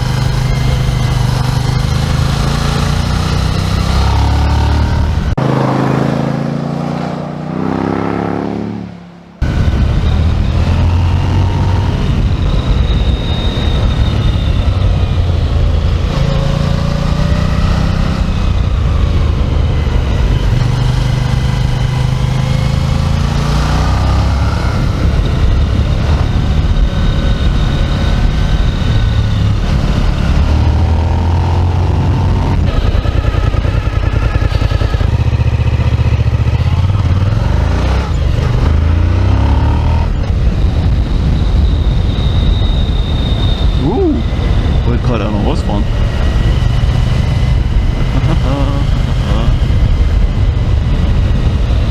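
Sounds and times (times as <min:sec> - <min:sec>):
motorcycle engine revving: 0:00.0 - 0:42.3, 0:43.4 - 0:51.9
motorcycle passing by: 0:01.4 - 0:11.9.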